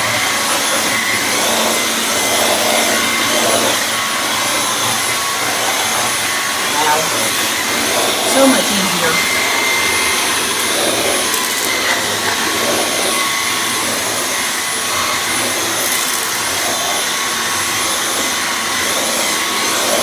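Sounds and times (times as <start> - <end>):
cordless vacuum running: 0.0 - 20.0.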